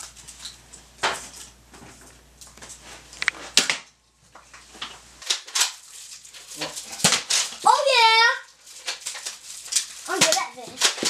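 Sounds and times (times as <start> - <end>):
toy dart gun knocks and clatters: 7.0 - 7.6, 8.8 - 11.0.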